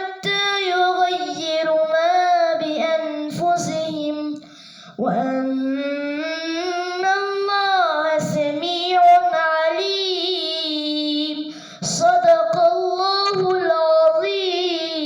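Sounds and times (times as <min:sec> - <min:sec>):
boy reciting melodically: 0:00.0 - 0:15.0
boy taking a breath: 0:04.4 - 0:05.0, 0:11.5 - 0:11.9.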